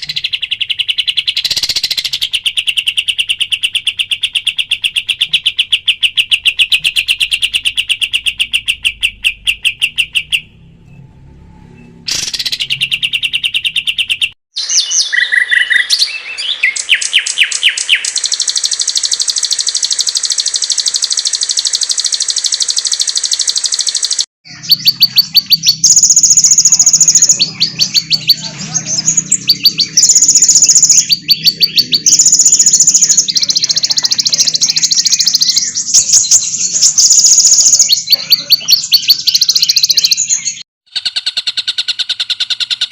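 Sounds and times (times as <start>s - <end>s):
songbirds trilling: 0.0s - 10.7s, 12.1s - 23.8s, 24.5s - 42.9s
low hum: 10.0s - 13.3s.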